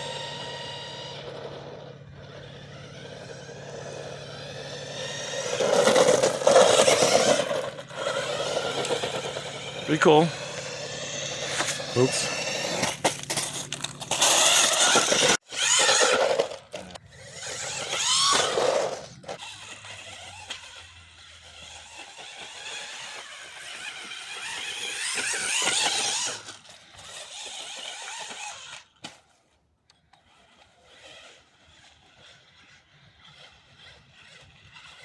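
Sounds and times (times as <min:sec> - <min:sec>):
rc car electric motor whining: 0:00.0 - 0:35.0.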